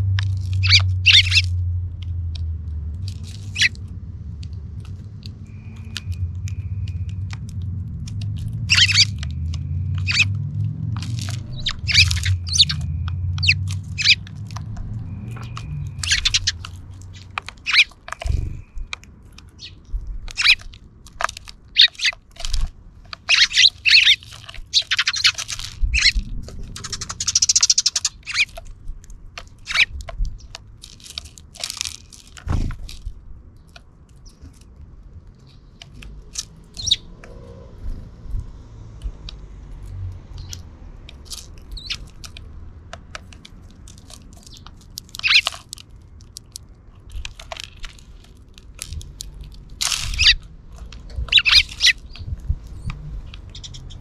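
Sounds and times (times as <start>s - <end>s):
sparrows chirping: 0.0s - 1.6s, 3.2s - 3.9s, 5.4s - 7.3s, 8.0s - 28.7s, 29.4s - 30.6s, 35.4s - 39.6s, 40.2s - 42.5s, 44.0s - 46.4s, 48.8s - 54.0s
low rumble: 0.0s - 17.4s, 25.6s - 27.5s.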